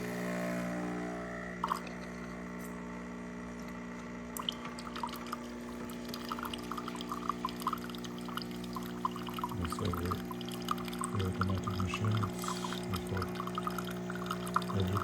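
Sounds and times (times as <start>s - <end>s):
pump hum: 0.0s - 15.0s
water trickling and dripping: 4.4s - 15.0s.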